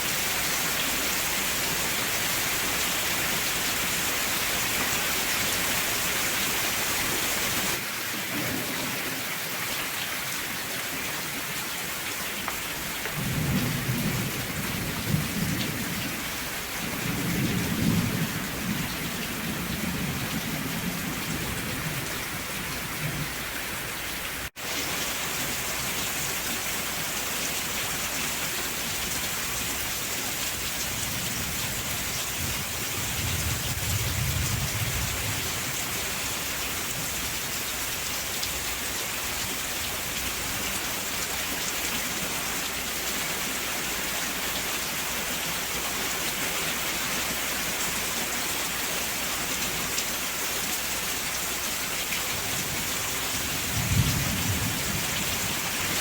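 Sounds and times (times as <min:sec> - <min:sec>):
steady rain falling: 0:00.0 - 0:56.0
distant thunder rumble: 0:13.0 - 0:23.6, 0:31.0 - 0:35.8, 0:52.7 - 0:55.7.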